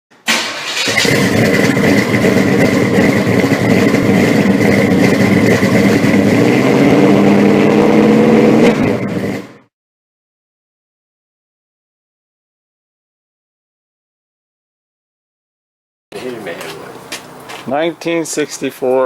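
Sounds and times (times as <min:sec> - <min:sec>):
car engine idling: 0:00.4 - 0:06.7, 0:16.1 - 0:19.0.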